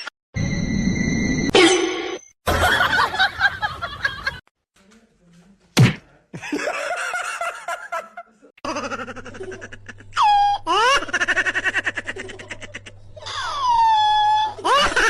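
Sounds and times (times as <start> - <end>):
person laughing: 6.3 - 15.0.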